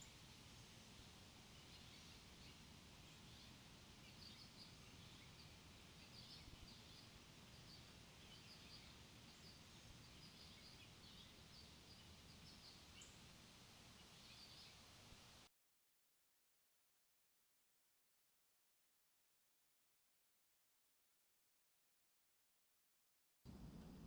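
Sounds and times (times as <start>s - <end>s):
outdoor background hiss: 0.0s - 15.5s, 23.5s - 24.0s
small birds chirping: 0.9s - 15.4s.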